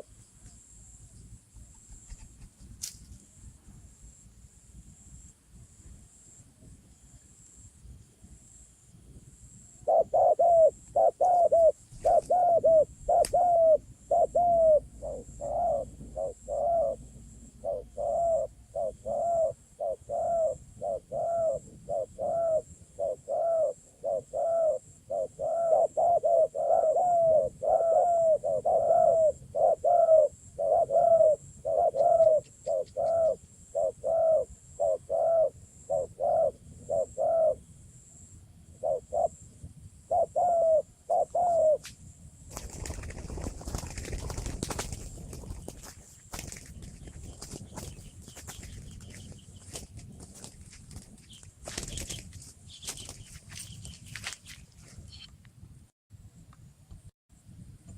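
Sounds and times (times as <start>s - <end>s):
bird call cooing notes: 9.8s - 37.6s, 38.8s - 39.4s, 40.1s - 41.8s.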